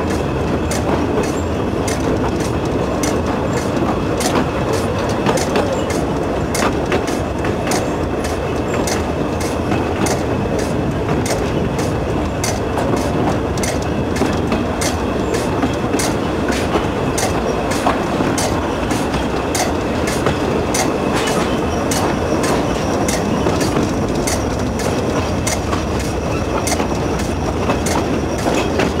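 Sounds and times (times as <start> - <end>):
train rumbling along track: 0.0 - 29.0
wheels clicking over rails: 0.0 - 29.0.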